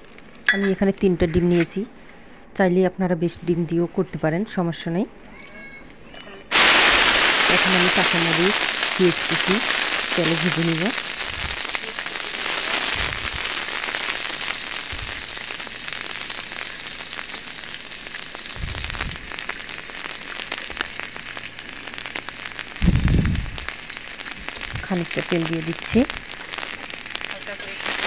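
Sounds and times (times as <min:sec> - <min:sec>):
oil sizzling with crackles: 0:00.0 - 0:01.9, 0:06.5 - 0:28.0
dull low thumps: 0:22.8 - 0:23.7.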